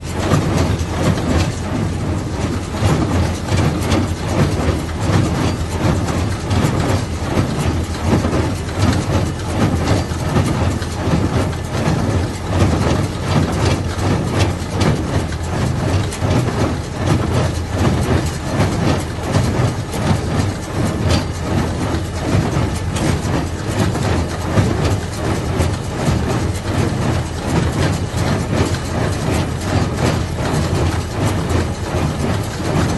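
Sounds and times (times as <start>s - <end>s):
tractor engine humming: 0.0s - 32.9s.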